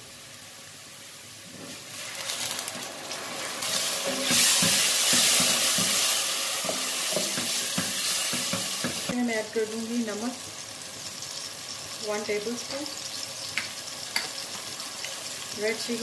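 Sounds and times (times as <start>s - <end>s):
puree sizzling in hot oil: 0.0s - 16.0s
spatula scraping a pot: 3.6s - 8.8s.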